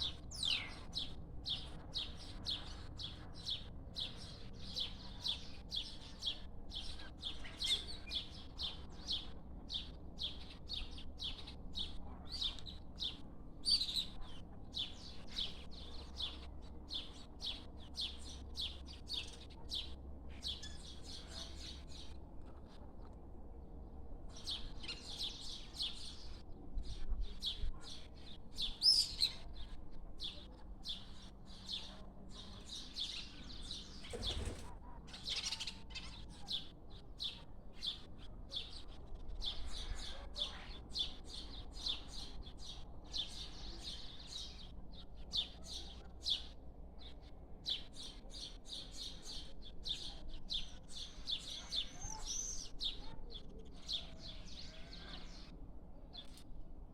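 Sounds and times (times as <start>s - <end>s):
small birds chirping: 24.3s - 56.6s.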